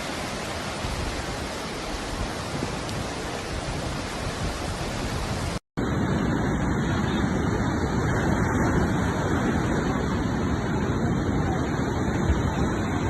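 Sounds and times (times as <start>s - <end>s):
floodwater rushing: 0.0s - 5.6s.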